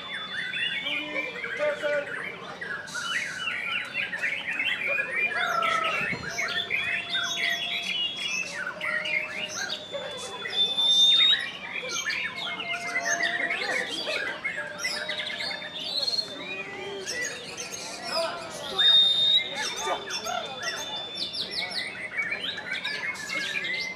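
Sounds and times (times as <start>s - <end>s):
songbird singing: 0.0s - 23.9s.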